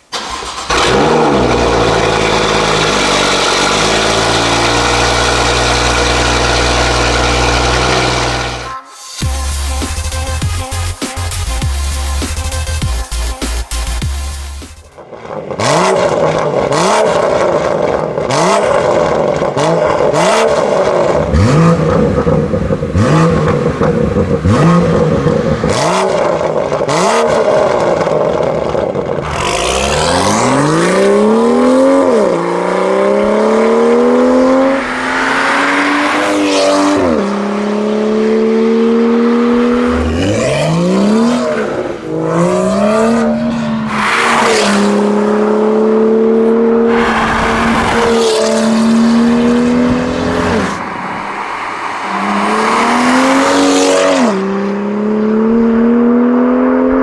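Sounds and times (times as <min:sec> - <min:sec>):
car engine revving with crackles: 0:00.0 - 0:08.7, 0:13.8 - 0:57.0
car accelerating through gears: 0:00.2 - 0:08.7, 0:15.2 - 0:57.0.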